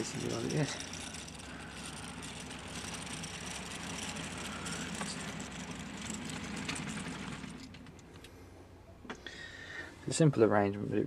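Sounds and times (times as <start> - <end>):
sharp track clicks: 0.0 - 8.3
model train motor and wheels: 0.0 - 8.4.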